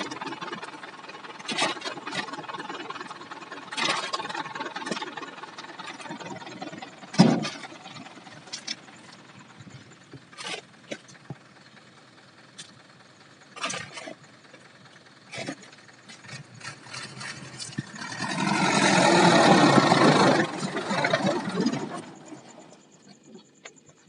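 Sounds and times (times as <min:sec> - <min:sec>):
low uneven rumble: 0:00.0 - 0:24.0
knocks and clunks: 0:05.8 - 0:11.5.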